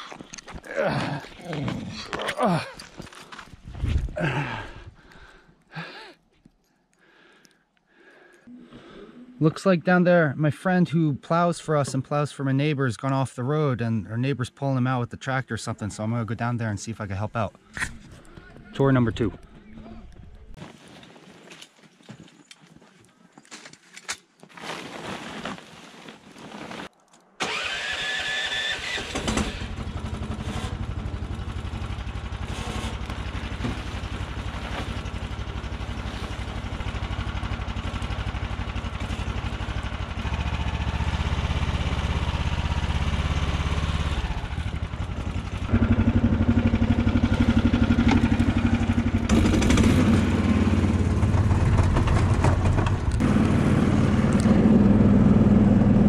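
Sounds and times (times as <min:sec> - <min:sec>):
vehicle engine starting and running: 0:27.4 - 0:56.0.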